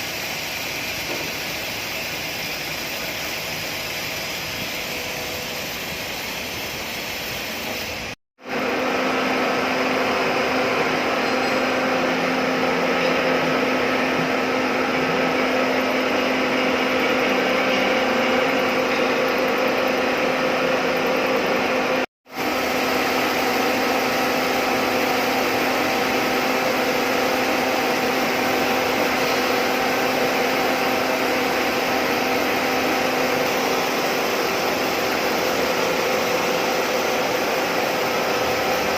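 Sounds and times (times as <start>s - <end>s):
milling machine cutting metal: 8.5s - 38.9s.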